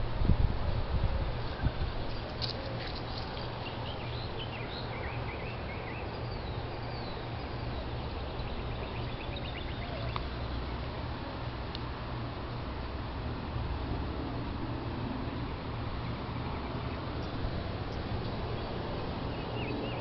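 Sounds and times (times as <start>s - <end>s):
outdoor hiss and rumble: 0.0s - 20.0s
small birds chirping: 1.5s - 11.1s, 15.3s - 20.0s.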